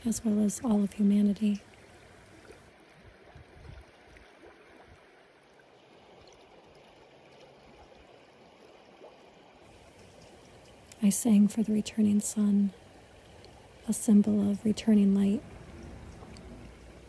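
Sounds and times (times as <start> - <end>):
soft even hiss: 9.7 - 17.0.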